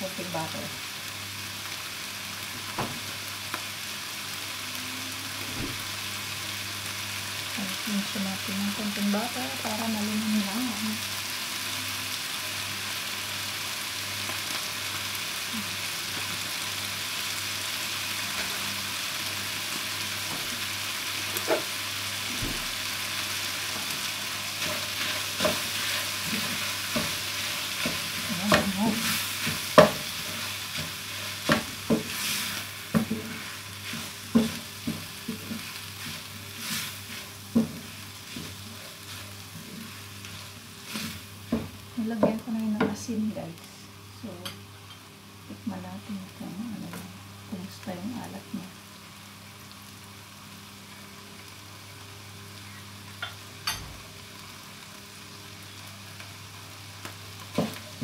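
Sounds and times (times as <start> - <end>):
vegetables sizzling in a pan: 0.0 - 58.0
spatula scraping and knocking pan: 24.6 - 43.0.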